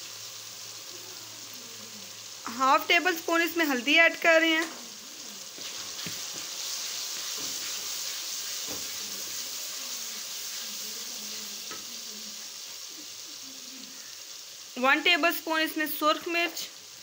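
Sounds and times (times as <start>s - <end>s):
sauce sizzling in oil: 0.0s - 17.0s
wooden spoon knocking pan: 8.6s - 9.0s.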